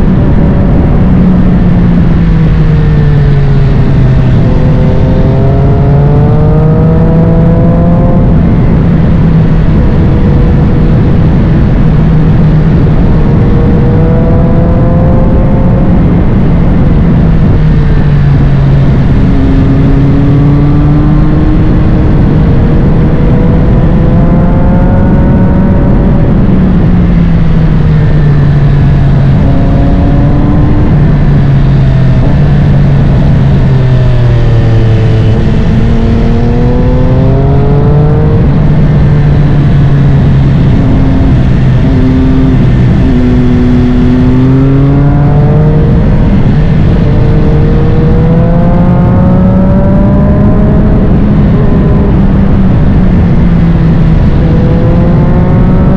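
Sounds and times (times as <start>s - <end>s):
constant rush of noise: 0.0s - 55.9s
motorcycle engine accelerating: 0.0s - 55.9s.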